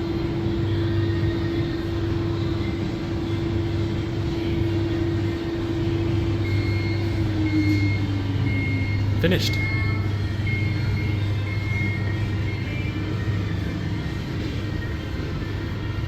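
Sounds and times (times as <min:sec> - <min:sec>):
tumble dryer humming: 0:00.0 - 0:16.0
electronic beep: 0:06.4 - 0:13.0.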